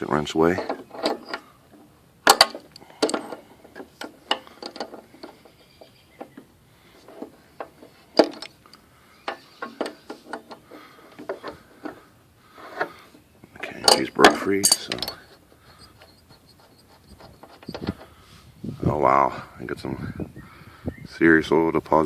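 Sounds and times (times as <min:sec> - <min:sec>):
wrench clinking on metal: 0:13.8 - 0:15.4.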